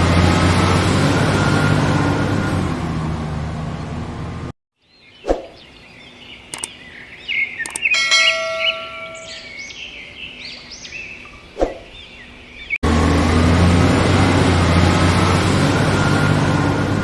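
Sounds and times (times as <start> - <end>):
small birds chirping: 4.8 - 12.8
light clicks: 6.5 - 6.8, 7.6 - 7.9.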